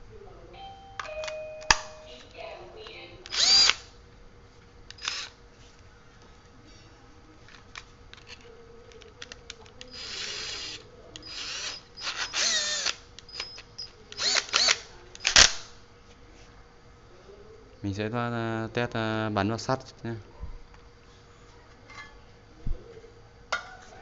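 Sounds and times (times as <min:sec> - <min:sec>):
cordless drill motor whining: 0:03.2 - 0:03.9, 0:04.9 - 0:05.4, 0:09.8 - 0:15.5.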